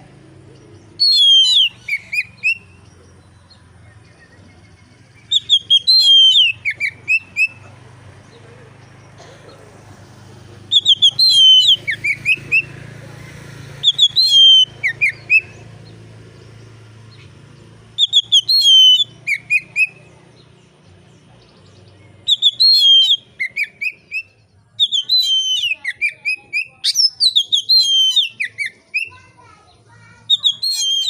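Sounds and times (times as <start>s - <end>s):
bird singing whistled phrases: 0.9s - 2.9s, 3.8s - 7.7s, 10.7s - 12.8s, 13.8s - 15.9s, 17.9s - 20.2s, 21.9s - 29.4s, 30.2s - 31.0s.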